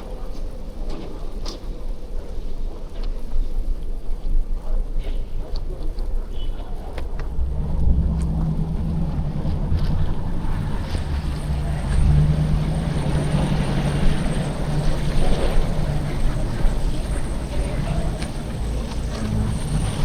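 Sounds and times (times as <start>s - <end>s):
wind buffeting microphone: 1.8s - 20.0s
vehicle engine running: 6.8s - 20.0s.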